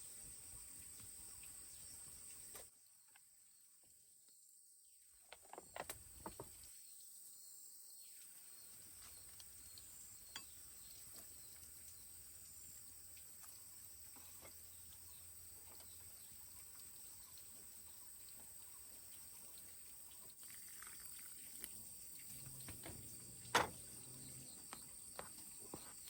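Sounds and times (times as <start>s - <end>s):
thin high-pitched whine: 9.6s - 18.3s.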